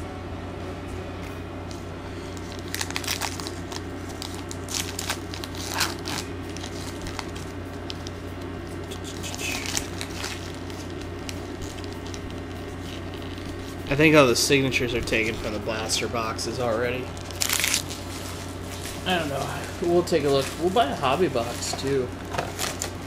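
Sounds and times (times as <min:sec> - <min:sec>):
steady low hum: 0:00.0 - 0:23.0
card pack wrapper crinkling: 0:02.3 - 0:14.2, 0:17.0 - 0:23.0.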